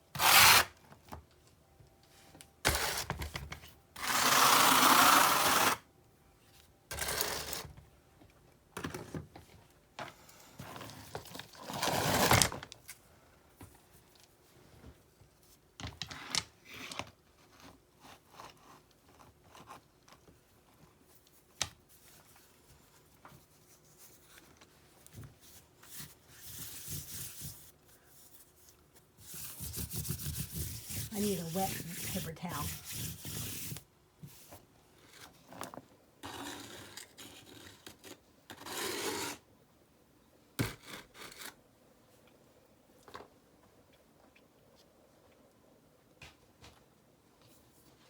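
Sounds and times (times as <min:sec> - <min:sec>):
trowel scraping rocks and mortar: 0:30.9 - 0:33.8.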